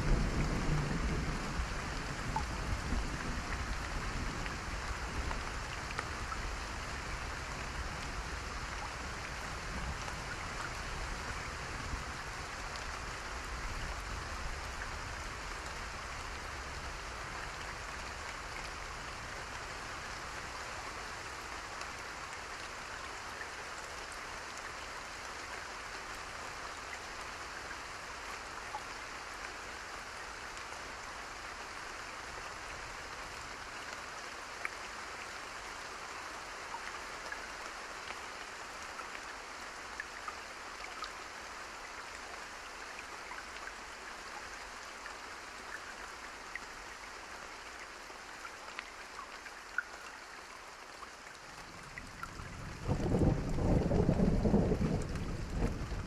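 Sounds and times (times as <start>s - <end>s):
rain hissing: 51.6s - 56.0s.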